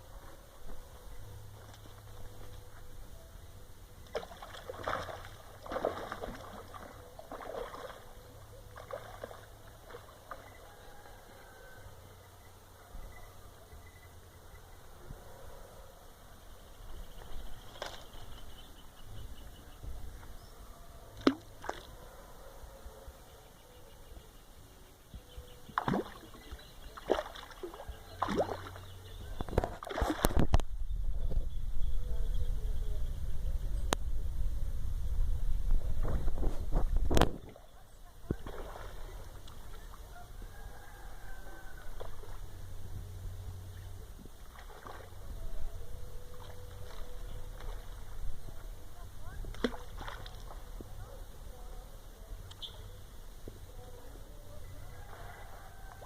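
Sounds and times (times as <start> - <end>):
steady low hum: 0.0 - 56.0
fish splashing at water surface: 4.1 - 8.1, 8.8 - 10.5, 25.8 - 28.8, 29.5 - 30.6, 38.3 - 39.8, 44.4 - 45.2, 49.5 - 50.7
low rumble: 29.1 - 37.6.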